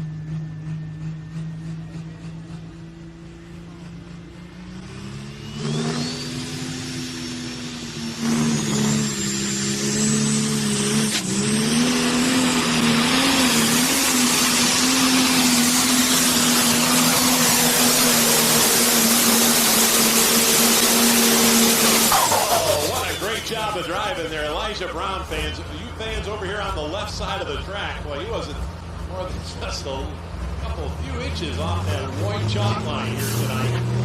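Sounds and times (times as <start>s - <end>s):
diesel engine under full load: 0.0s - 34.0s
high turbo whistle: 4.9s - 24.0s.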